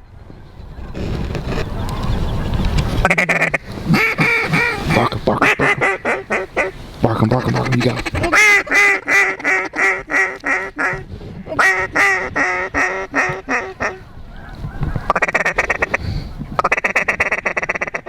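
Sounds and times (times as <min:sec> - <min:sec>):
fast chattering feed calls: 0:00.8 - 0:09.1
duck call quacks: 0:03.0 - 0:14.0, 0:15.1 - 0:16.0, 0:16.6 - 0:18.0.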